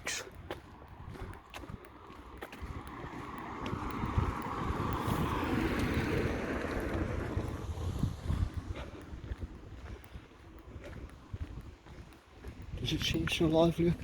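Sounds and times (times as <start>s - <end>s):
wind buffeting microphone: 0.0s - 14.0s
vehicle passing: 0.6s - 11.3s.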